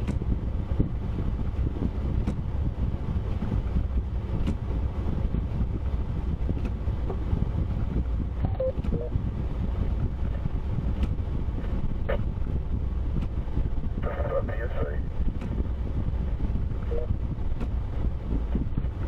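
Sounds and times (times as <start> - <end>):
car engine rumble: 0.0 - 19.0
road noise: 0.0 - 19.0
faint beeps: 8.4 - 9.1.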